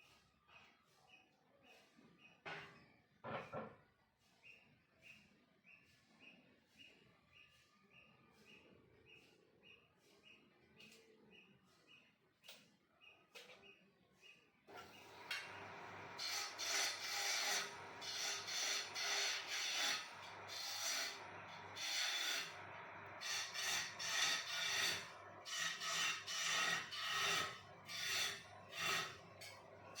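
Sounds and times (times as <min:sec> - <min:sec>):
lathe motor hum: 0:14.8 - 0:30.0
tool scraping spinning wood: 0:14.8 - 0:30.0.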